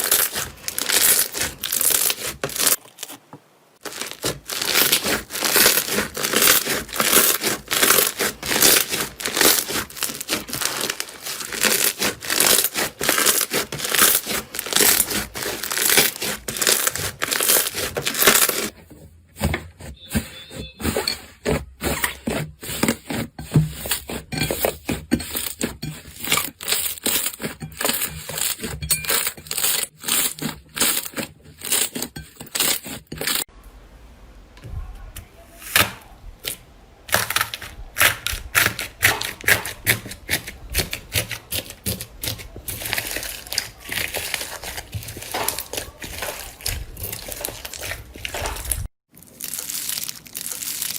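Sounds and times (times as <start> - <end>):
slime crackling and popping: 0.0 - 3.1, 3.8 - 18.7, 36.5 - 50.9.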